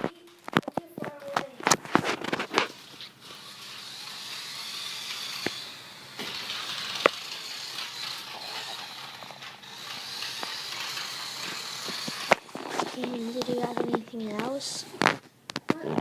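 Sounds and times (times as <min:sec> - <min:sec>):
wheels rolling over floor: 0:00.0 - 0:16.0
toy car motor whining: 0:02.0 - 0:15.1.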